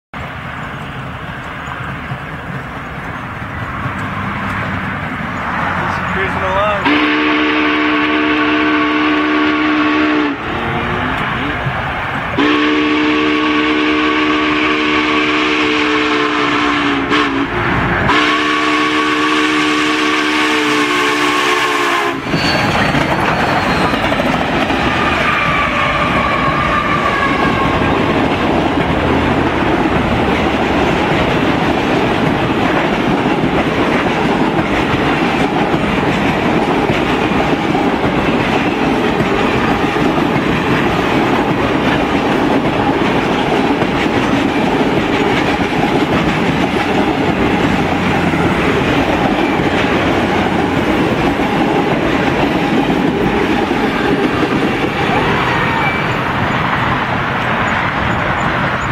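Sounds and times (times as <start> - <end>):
train wheels rumbling on rail: 0.1 - 58.9
steam locomotive whistle: 6.7 - 11.0, 12.4 - 24.0, 24.9 - 28.0, 53.3 - 56.3.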